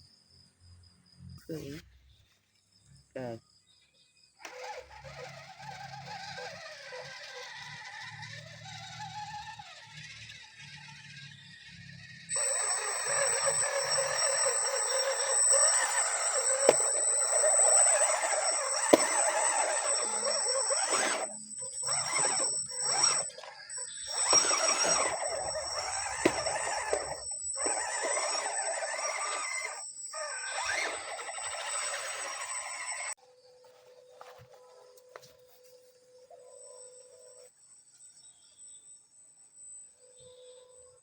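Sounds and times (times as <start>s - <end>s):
electric motor and gear whine: 4.4s - 33.2s
high-pitched whine: 10.7s - 33.2s.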